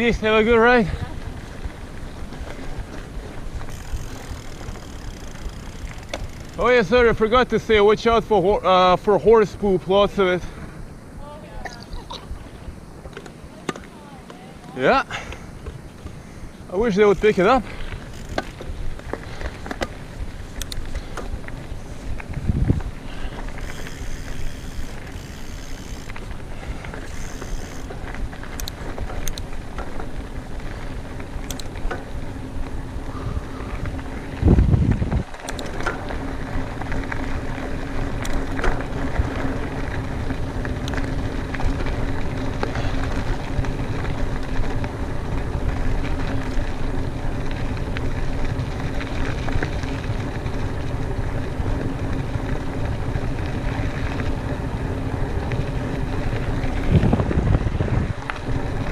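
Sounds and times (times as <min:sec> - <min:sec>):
rumble: 0:00.0 - 0:07.6, 0:17.3 - 0:58.9
bike tyre rolling and rattle: 0:00.0 - 0:58.9
steady hum: 0:00.0 - 0:58.9
wind rushing over microphone: 0:18.6 - 0:23.6, 0:32.2 - 0:38.2, 0:53.0 - 0:58.9.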